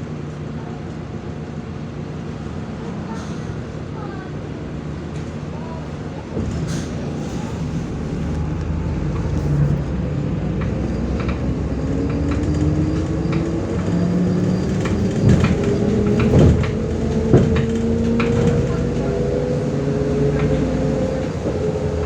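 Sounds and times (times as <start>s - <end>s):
bus body rattling: 0.2s - 22.0s
bus engine whine rising: 6.3s - 22.0s.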